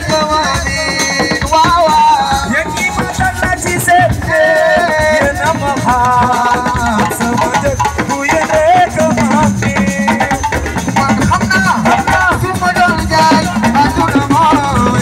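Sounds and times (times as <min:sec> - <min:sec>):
drums and shakers rhythm: 0:00.0 - 0:15.0.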